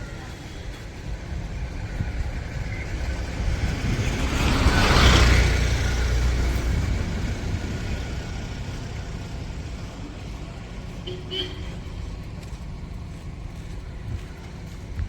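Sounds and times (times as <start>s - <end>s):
vehicle passing by: 1.4s - 11.0s.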